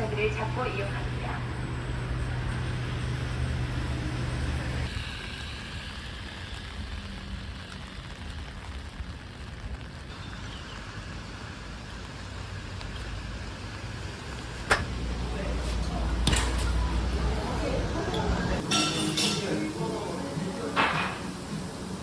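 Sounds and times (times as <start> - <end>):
escalator machinery hum: 0.0 - 8.9, 9.5 - 22.0.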